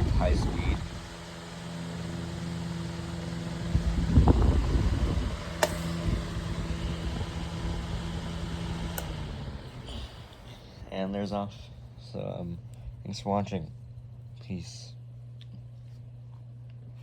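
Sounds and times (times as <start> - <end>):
electric fan motor hum: 0.0 - 17.0
sharp click: 5.6 - 6.2, 8.9 - 9.2.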